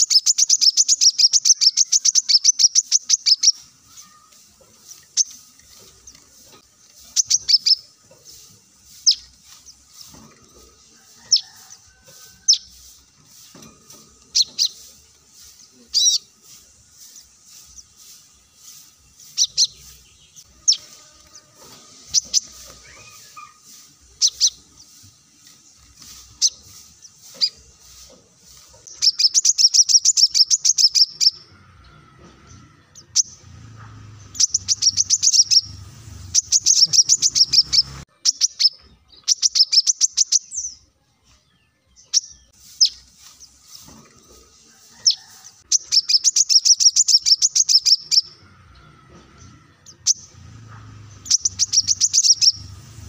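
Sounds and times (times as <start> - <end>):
bird chip calls: 0.0 - 10.2, 14.3 - 16.4, 17.0 - 25.0, 28.8 - 40.6, 45.0 - 48.9, 49.8 - 53.0.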